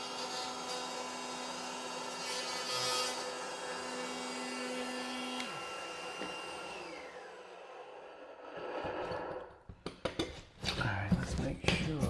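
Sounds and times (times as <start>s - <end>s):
power tool motor spinning down: 5.3s - 9.3s.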